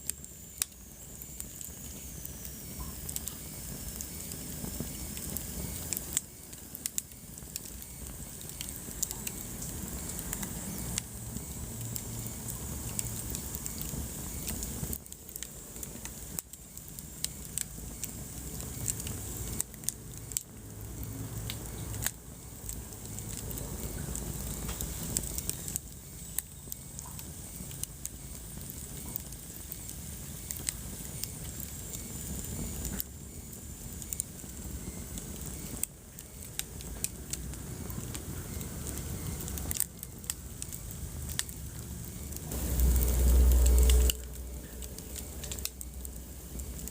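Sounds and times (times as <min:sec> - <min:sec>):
fire crackling and popping: 0:00.0 - 0:46.9
low rumble of flames: 0:00.0 - 0:46.9.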